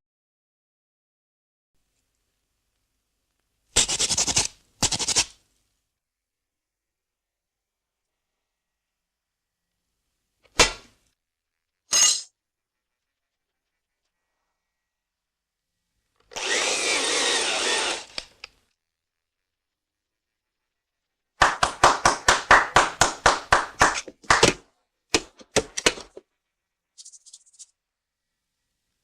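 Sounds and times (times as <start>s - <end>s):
sharp tool strokes: 16.3s - 18.3s.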